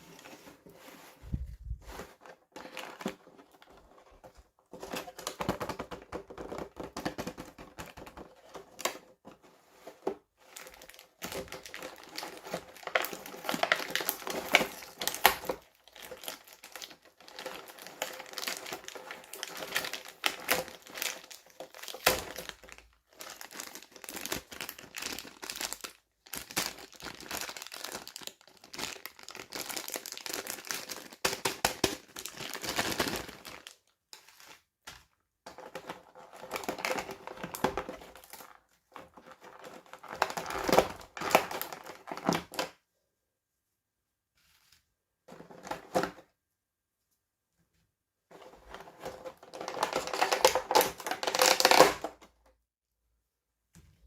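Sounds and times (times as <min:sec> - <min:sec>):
plastic packaging crinkling and tearing: 0:10.5 - 0:34.6, 0:35.6 - 0:42.6, 0:49.0 - 0:52.1.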